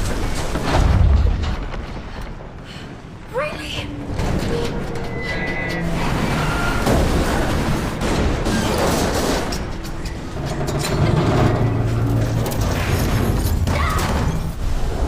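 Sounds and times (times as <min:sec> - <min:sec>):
loud booms and crashes: 0:00.0 - 0:02.6
dramatic film music: 0:03.2 - 0:14.8.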